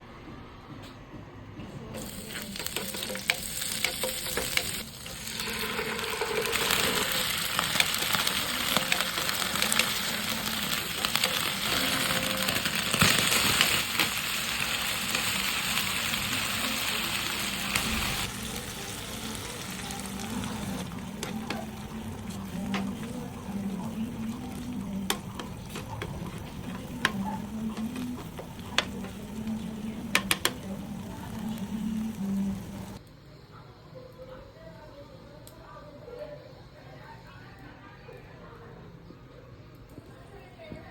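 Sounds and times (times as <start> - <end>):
food sizzling in a pan: 2.0 - 33.0.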